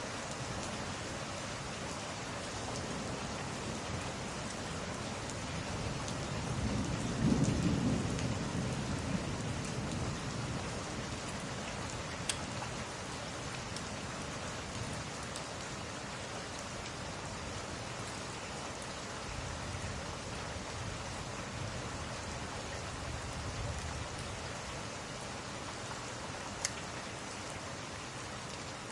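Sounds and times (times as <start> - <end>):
steady rainfall: 0.0 - 28.9
thunder rumbling: 5.9 - 11.2
faint sharp clicks: 12.2 - 12.5, 26.6 - 26.8.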